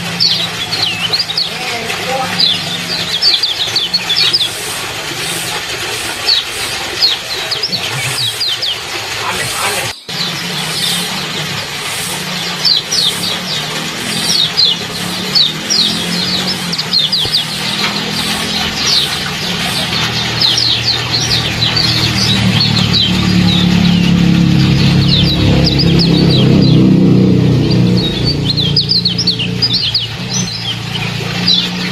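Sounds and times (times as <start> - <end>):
low steady motor hum: 0.0 - 31.9
songbird chirping: 0.0 - 31.9.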